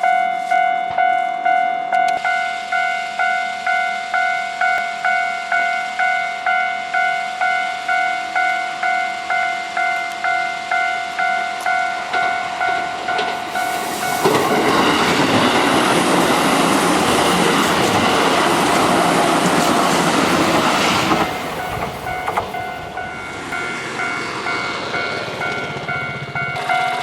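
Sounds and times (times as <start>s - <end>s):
electric train running past: 0.0s - 27.0s
level crossing bell ringing: 0.0s - 27.0s.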